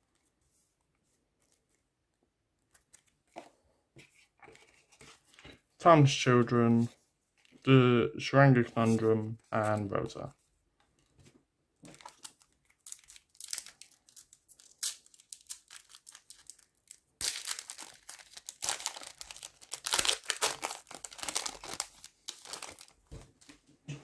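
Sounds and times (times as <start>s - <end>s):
plastic wrapper crinkling and tearing: 11.8s - 23.5s.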